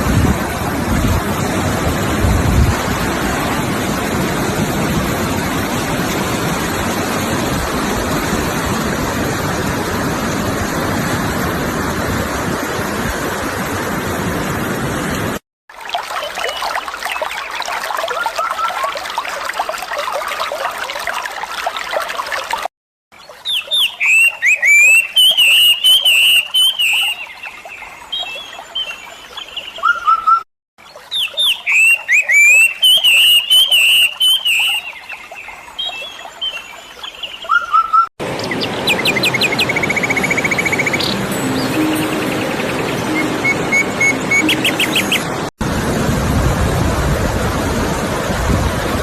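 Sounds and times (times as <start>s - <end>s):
stream running water: 0.0s - 49.0s
bird singing chirps: 23.2s - 45.4s.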